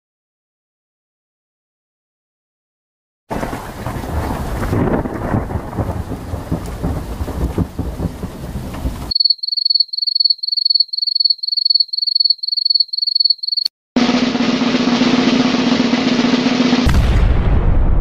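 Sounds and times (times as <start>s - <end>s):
thunder rumbling: 3.3s - 9.1s, 14.8s - 18.0s
cricket chirping: 9.1s - 13.7s
snare drum roll: 14.0s - 17.3s.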